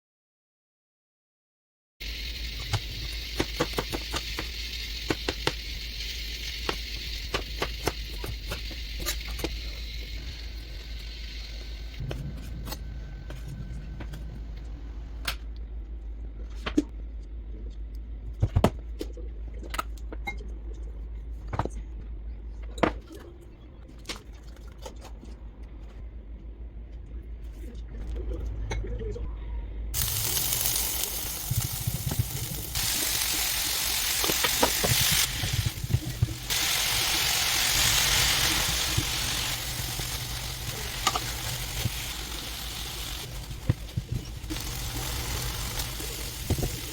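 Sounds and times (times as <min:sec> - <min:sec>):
hiss: 0:02.0 - 0:12.0, 0:30.0 - 0:46.9
steady low hum: 0:02.0 - 0:23.8, 0:25.4 - 0:46.9.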